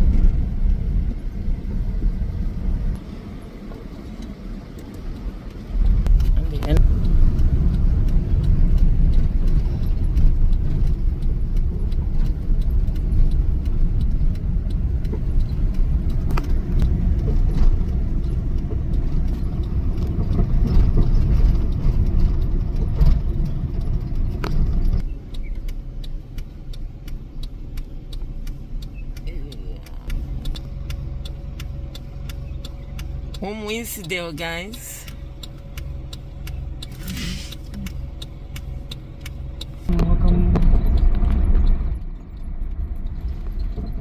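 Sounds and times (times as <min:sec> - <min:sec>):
car road rumble: 0:00.0 - 0:44.0
small clicks and rattles: 0:03.7 - 0:33.4.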